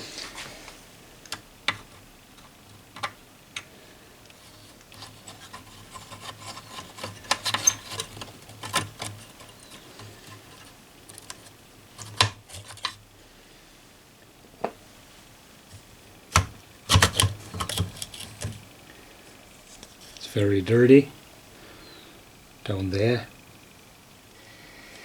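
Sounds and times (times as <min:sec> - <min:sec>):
hands rubbing radio parts: 0:00.0 - 0:03.7, 0:04.3 - 0:13.0, 0:15.8 - 0:18.7.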